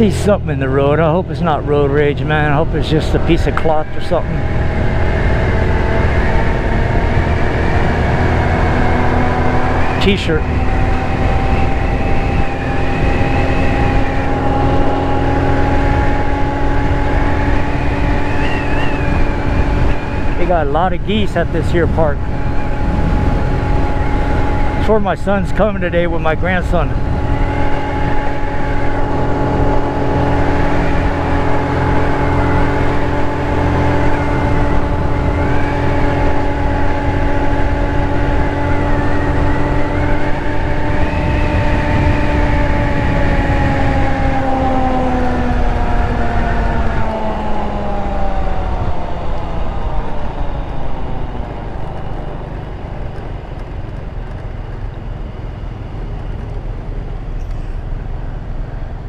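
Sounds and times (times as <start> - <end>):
scooter engine running: 3.6 - 21.1, 26.2 - 59.0.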